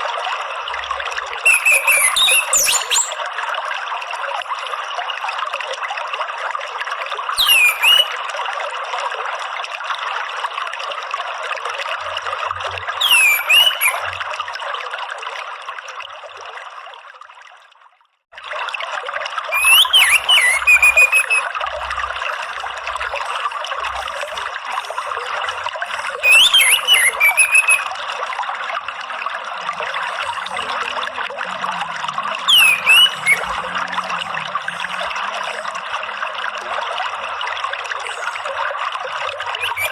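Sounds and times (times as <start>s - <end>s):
water trickling: 0.0s - 39.9s
thrush whistling call: 1.4s - 3.2s, 7.4s - 8.2s, 13.0s - 14.1s, 19.5s - 21.6s, 25.9s - 27.9s, 32.3s - 35.6s, 39.6s - 39.9s
high chattering bird notes: 1.5s - 3.2s, 7.4s - 8.1s, 13.0s - 14.0s, 19.5s - 21.5s, 26.2s - 27.8s, 32.4s - 33.6s, 39.6s - 39.9s.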